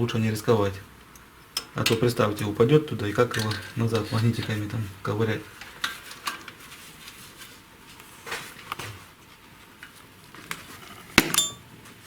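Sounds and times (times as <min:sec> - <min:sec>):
loud metallic clink: 0:11.2 - 0:11.7
metal tools tapping on engine: 0:11.3 - 0:11.6.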